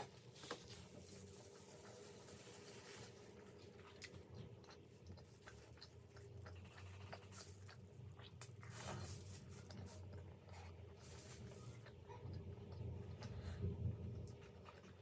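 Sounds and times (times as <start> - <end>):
low steady hum: 0.0 - 15.0
chewing and biting food: 3.5 - 15.0.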